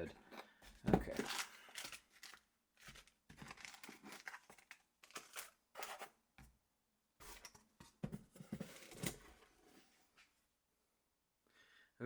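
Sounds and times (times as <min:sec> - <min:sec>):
packaging rustling and scraping: 0:00.7 - 0:06.2, 0:07.2 - 0:09.5.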